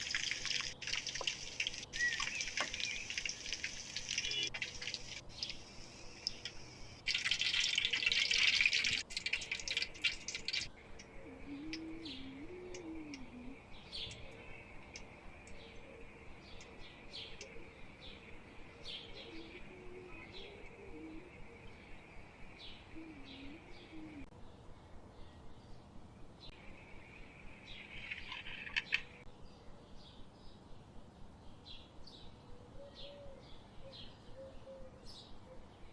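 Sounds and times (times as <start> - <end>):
loud hiss with clicks: 0.0 - 7.0
bird chirping: 0.0 - 24.3, 26.4 - 30.6.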